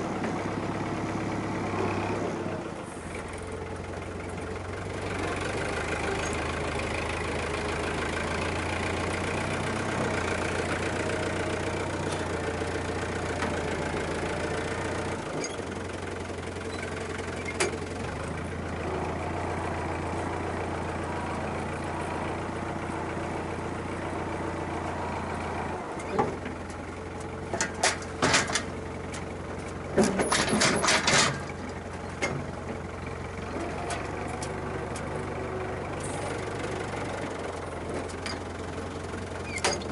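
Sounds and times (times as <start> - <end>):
tractor engine running: 0.0 - 39.9
loud clanks and rattles: 26.0 - 35.1.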